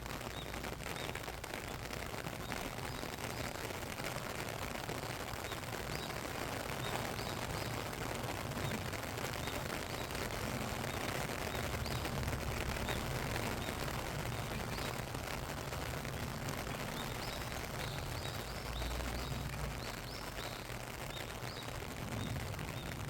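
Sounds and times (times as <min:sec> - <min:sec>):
steady rain patter: 0:00.0 - 0:23.0.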